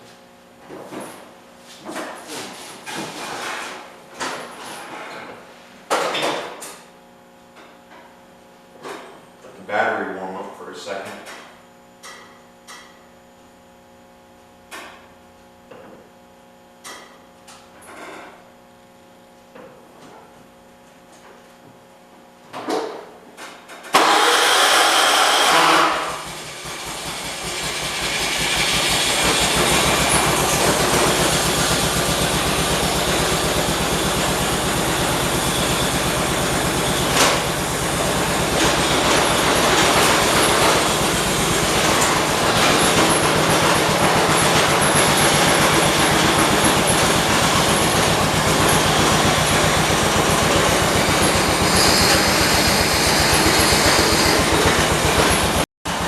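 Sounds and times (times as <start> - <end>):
small engine running: 23.9 - 56.0.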